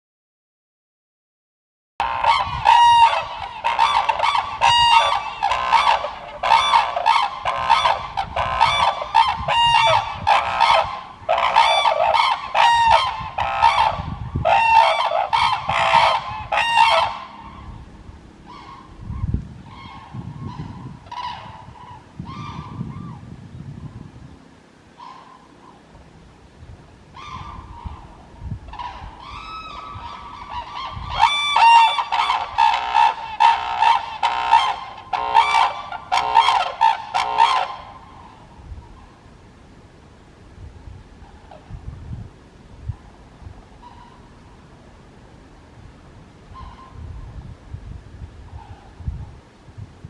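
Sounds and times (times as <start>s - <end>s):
cranes calling: 2.0s - 23.2s, 24.9s - 26.0s, 27.1s - 39.2s, 43.8s - 44.6s, 46.5s - 47.1s.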